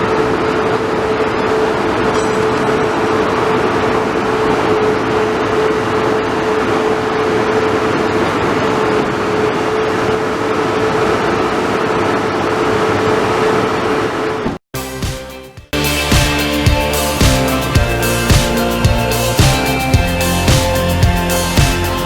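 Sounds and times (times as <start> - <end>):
constant whine: 0.0 - 14.6.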